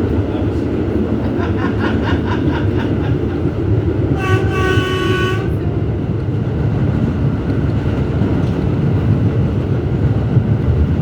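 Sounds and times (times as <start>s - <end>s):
subway train rumbling: 0.0s - 11.0s
train horn: 4.1s - 5.6s.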